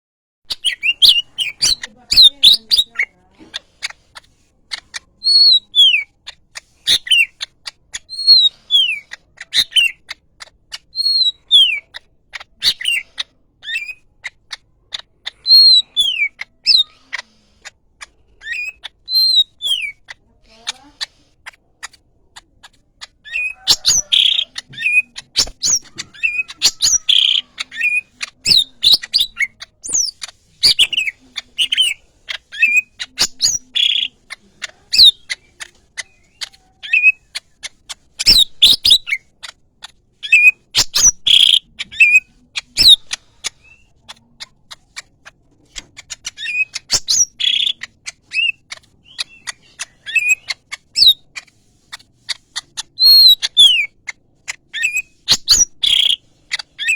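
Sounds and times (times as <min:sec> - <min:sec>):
bird singing whistled notes: 0:00.5 - 0:03.0, 0:05.2 - 0:06.1, 0:10.9 - 0:11.9, 0:18.4 - 0:20.0, 0:23.2 - 0:34.2, 0:40.2 - 0:43.9, 0:46.4 - 0:51.2, 0:53.0 - 0:53.9, 0:54.8 - 0:56.2.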